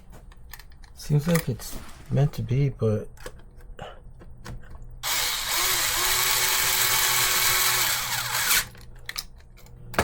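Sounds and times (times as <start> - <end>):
power driver driving a screw: 5.0 - 8.8.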